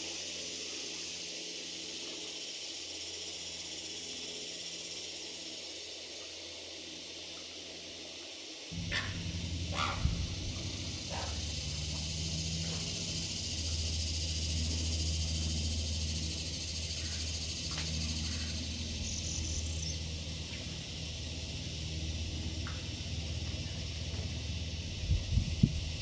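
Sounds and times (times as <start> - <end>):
steady high hiss: 0.0 - 26.0
high bird call: 8.8 - 14.1
bird chirps: 8.8 - 20.1
low rumble: 8.8 - 22.9.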